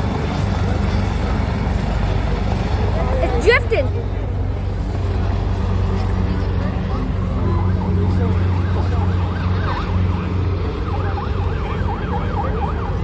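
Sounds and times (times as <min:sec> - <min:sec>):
steady low drone: 0:00.0 - 0:13.0
emergency siren yelp: 0:07.3 - 0:13.0.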